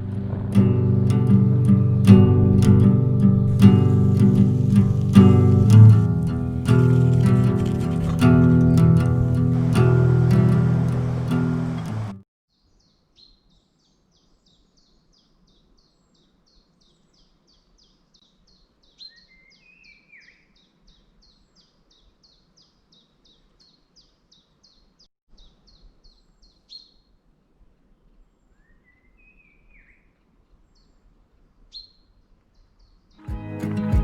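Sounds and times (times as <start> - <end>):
bird sliding phrase: 0.0 - 12.1
soft outdoor hiss: 0.0 - 34.0.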